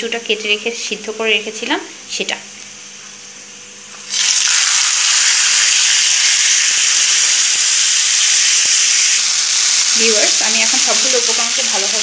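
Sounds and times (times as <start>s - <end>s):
food sizzling in hot oil: 3.9s - 12.0s.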